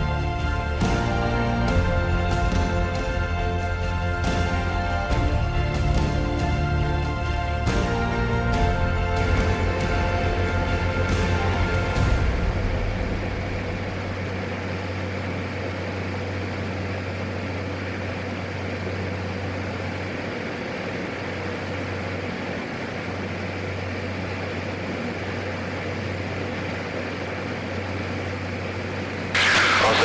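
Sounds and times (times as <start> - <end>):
propeller aircraft engine drone: 13.0 - 30.0.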